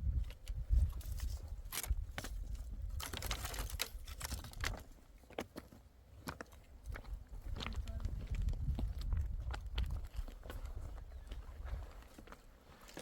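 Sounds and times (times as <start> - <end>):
light clicks and crackles: 3.0 - 5.5.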